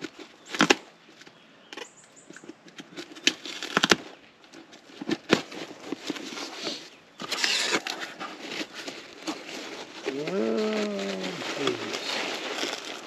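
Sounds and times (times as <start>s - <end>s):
packing peanuts rustling: 3.0s - 13.0s.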